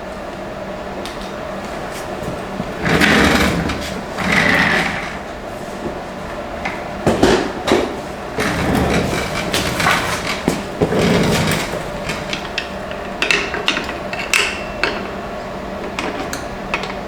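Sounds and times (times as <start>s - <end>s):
hose scraping and rubbing: 1.6s - 5.8s, 8.3s - 12.6s.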